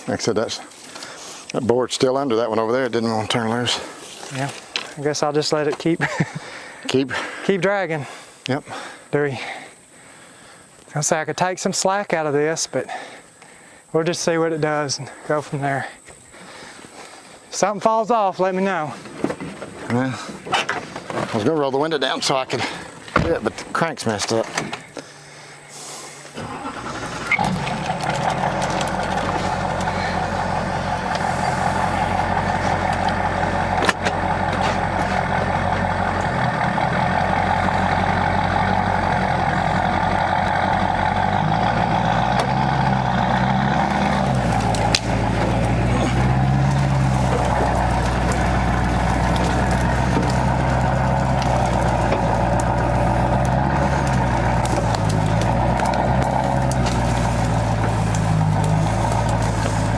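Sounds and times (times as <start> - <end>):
engine running under load: 24.6 - 59.9.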